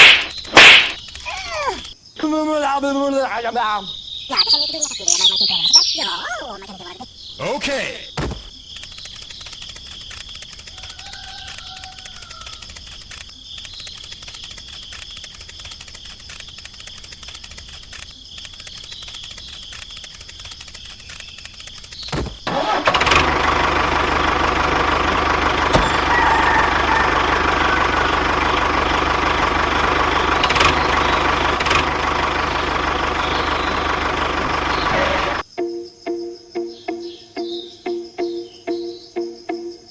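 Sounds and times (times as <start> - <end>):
small motor ticking: 0.2 - 2.0, 8.5 - 35.4
loud steady motor: 22.2 - 35.4.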